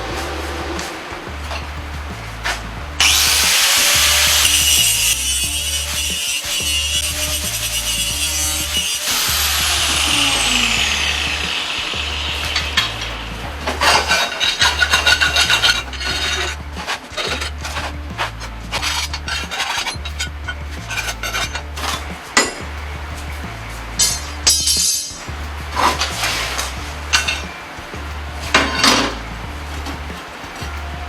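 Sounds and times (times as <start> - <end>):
background music with steady beat: 0.0 - 31.0
power tool cutting: 3.0 - 16.6.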